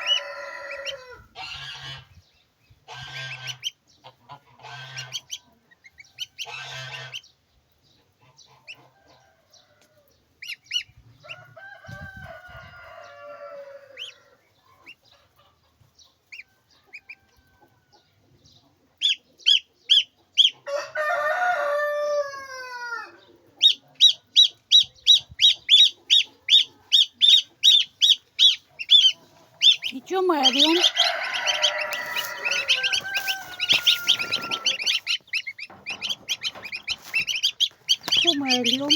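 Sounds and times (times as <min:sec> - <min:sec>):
rooster crowing: 0:00.0 - 0:01.3, 0:11.2 - 0:14.4, 0:20.6 - 0:23.2, 0:30.6 - 0:35.1.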